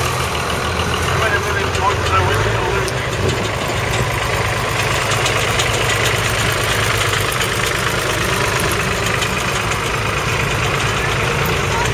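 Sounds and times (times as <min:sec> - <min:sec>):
tractor engine running: 0:00.0 - 0:11.9.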